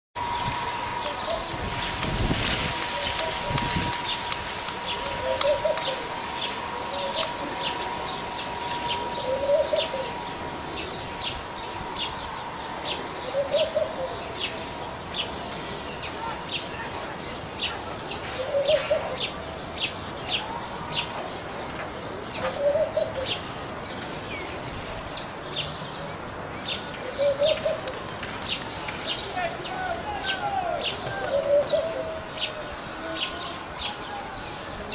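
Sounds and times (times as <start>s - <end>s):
birds chirping: 0.2s - 34.9s
lower bird call: 2.8s - 16.7s.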